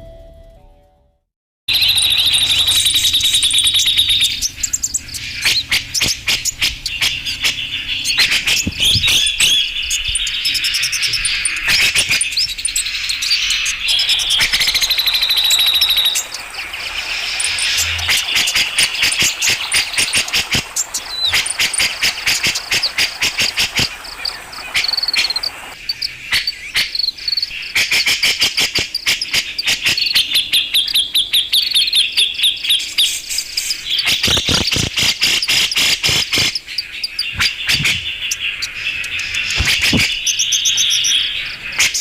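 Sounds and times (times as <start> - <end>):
bulbul chattering calls: 1.7 - 33.2, 33.8 - 42.0.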